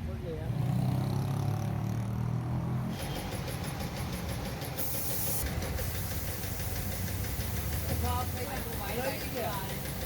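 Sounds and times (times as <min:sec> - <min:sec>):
engine running: 0:02.8 - 0:10.0
loud hiss: 0:04.6 - 0:10.0.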